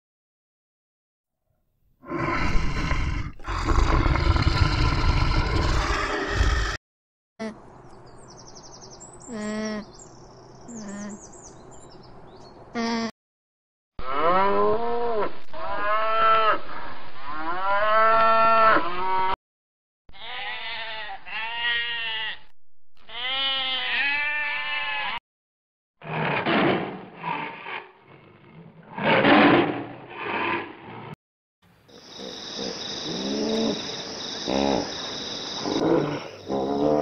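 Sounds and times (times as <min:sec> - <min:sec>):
tiger growling: 0:02.0 - 0:06.8, 0:26.0 - 0:31.1, 0:32.0 - 0:37.0
sheep bleating: 0:20.1 - 0:25.2.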